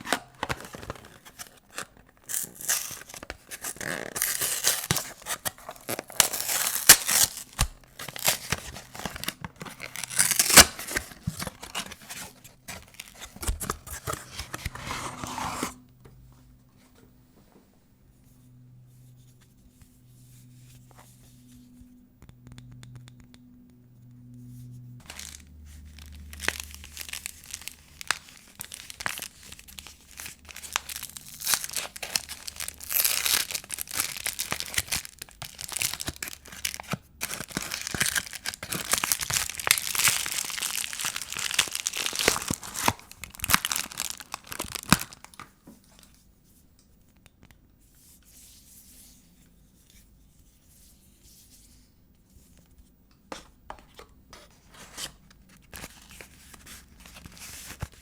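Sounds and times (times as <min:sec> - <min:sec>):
wrapper crinkling and tearing: 0:00.0 - 0:15.6, 0:25.0 - 0:46.2.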